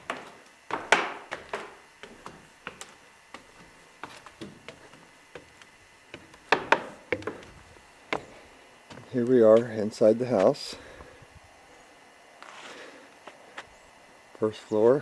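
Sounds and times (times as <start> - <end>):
knocks and taps on wood: 0.1 - 3.5, 4.3 - 7.5.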